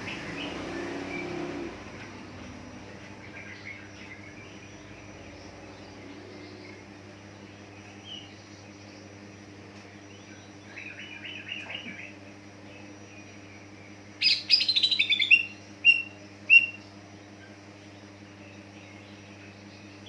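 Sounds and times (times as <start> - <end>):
bird singing: 0.0 - 20.0
steady low hum: 0.0 - 20.0
short bird calls: 14.2 - 16.9.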